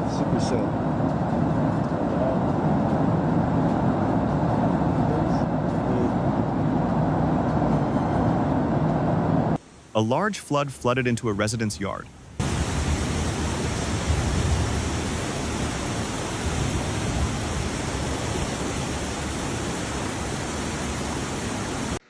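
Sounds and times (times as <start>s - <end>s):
floodwater rushing: 10.0s - 22.0s.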